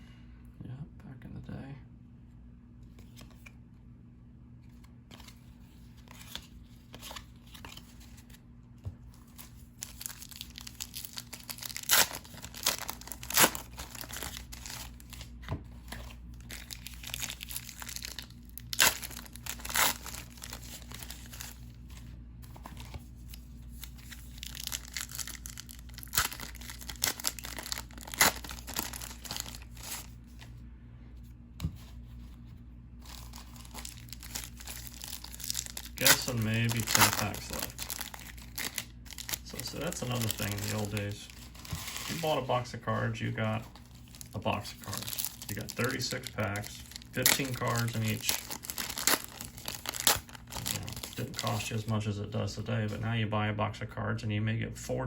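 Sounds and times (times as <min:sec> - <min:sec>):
cards being handled: 0:02.8 - 0:03.6, 0:04.6 - 0:30.5, 0:31.6 - 0:51.8
card packs being torn open: 0:09.3 - 0:21.7, 0:22.5 - 0:30.2, 0:33.0 - 0:51.9
wrappers crinkling: 0:09.3 - 0:21.7, 0:22.7 - 0:30.2, 0:33.0 - 0:51.9.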